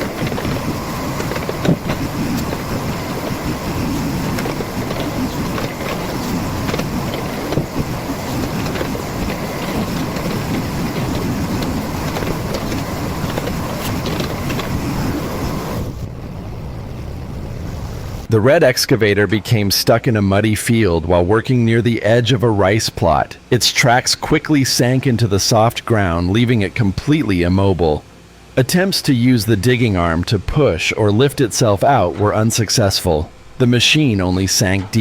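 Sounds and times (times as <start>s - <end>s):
heavy machine engine drone: 0.0s - 18.4s.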